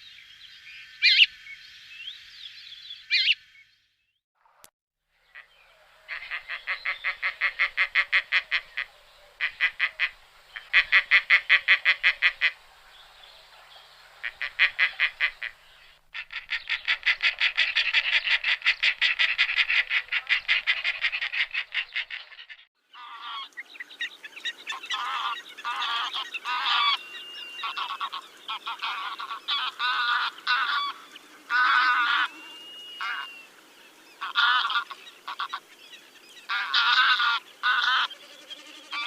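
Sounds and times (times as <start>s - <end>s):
waterfowl honking in a flock: 6.1s - 12.6s, 14.2s - 15.6s, 16.2s - 23.6s, 24.4s - 33.5s, 34.2s - 35.7s, 36.4s - 38.2s.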